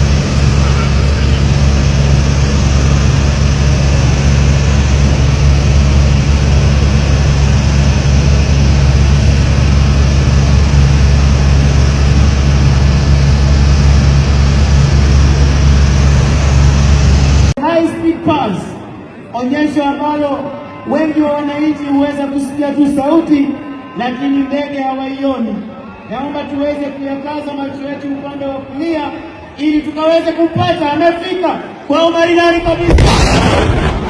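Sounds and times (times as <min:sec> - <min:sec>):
fighter jet engine roar: 0:00.0 - 0:17.6, 0:31.6 - 0:34.0.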